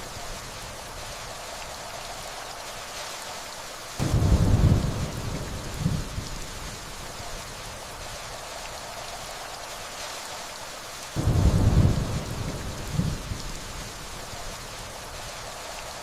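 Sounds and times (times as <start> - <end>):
rain hiss: 0.0 - 16.0
low thunder rumble: 4.0 - 6.9, 11.2 - 15.4.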